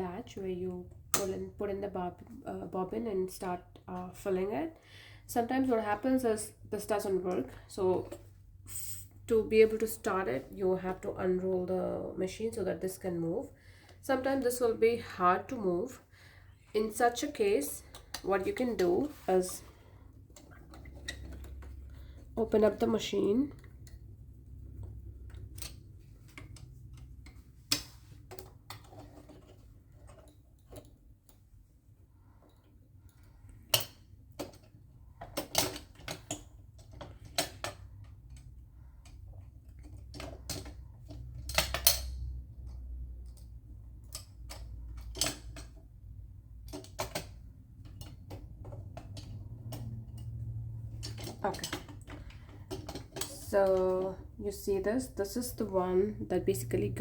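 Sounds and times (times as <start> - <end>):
low steady hum: 0.0 - 57.0
metal parts and tools clinking: 46.7 - 54.1.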